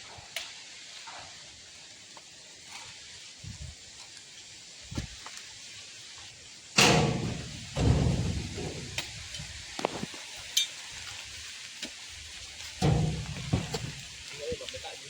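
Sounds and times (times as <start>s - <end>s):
steady hiss: 0.0s - 15.0s
heavy thuds of fruit bunches landing: 6.8s - 9.3s, 12.8s - 14.2s.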